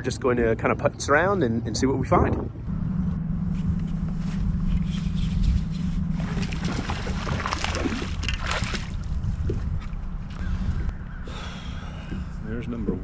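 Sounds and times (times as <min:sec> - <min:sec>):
boat motor humming: 0:00.0 - 0:13.0
water noise: 0:00.0 - 0:13.0
wind: 0:00.0 - 0:13.0
water splashing: 0:05.5 - 0:10.2.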